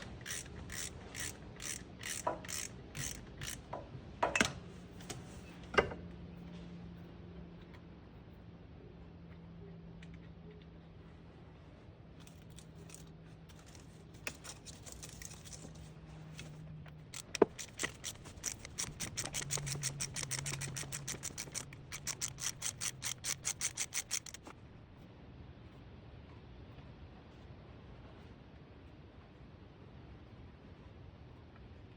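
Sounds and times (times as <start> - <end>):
socket ratchet clicking: 0.0 - 3.8, 16.9 - 24.6.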